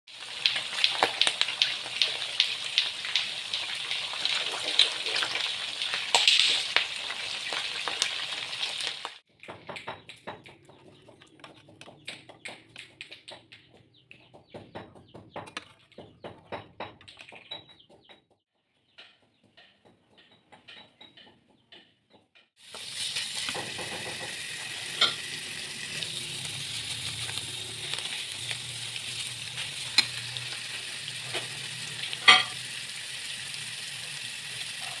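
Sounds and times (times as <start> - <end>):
fish frying in hot oil: 0.1 - 9.2, 22.6 - 35.0
spice paste sizzling in oil: 0.1 - 9.2, 22.6 - 35.0.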